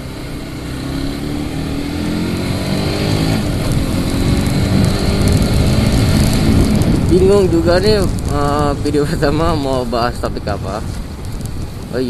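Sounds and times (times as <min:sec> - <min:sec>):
motorcycle engine accelerating: 0:00.0 - 0:08.9
wind noise on microphone: 0:00.0 - 0:12.0.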